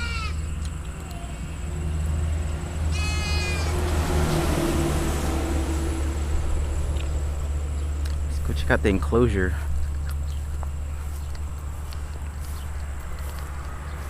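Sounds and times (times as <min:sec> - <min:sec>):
goat bleating: 0:00.0 - 0:00.5, 0:02.9 - 0:03.9.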